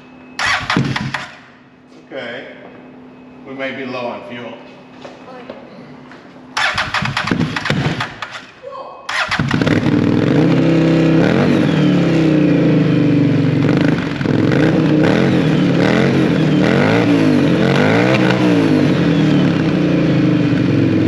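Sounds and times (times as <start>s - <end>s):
engine revving loudly: 9.1s - 21.0s.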